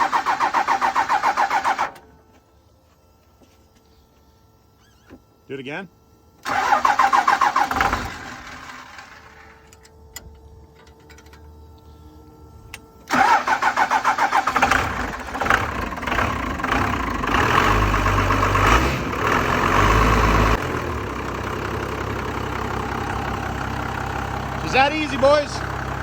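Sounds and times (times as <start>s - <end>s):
diesel engine cranking and starting: 0.0s - 2.1s, 6.4s - 11.6s, 12.6s - 26.0s.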